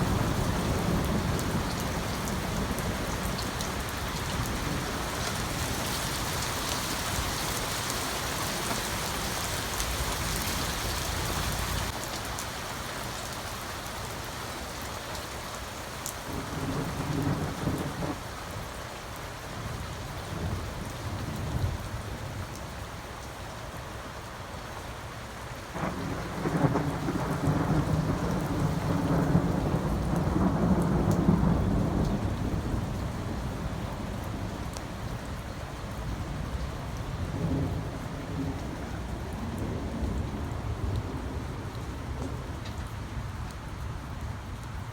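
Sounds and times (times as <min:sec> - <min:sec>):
thunder rumbling: 0:00.0 - 0:06.0, 0:25.8 - 0:34.6
steady rain falling: 0:00.0 - 0:44.9.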